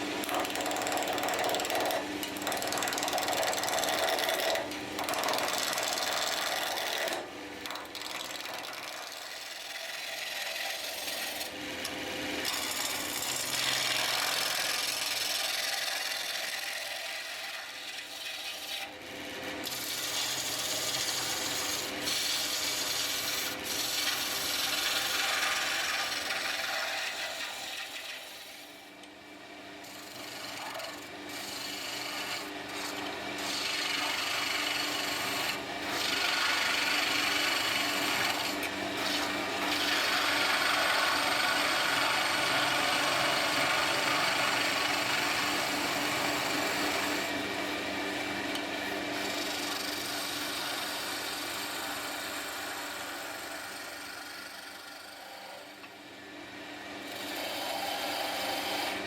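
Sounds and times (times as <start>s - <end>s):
tool scraping wooden handle: 0.0s - 11.6s, 19.6s - 28.7s, 30.1s - 47.4s.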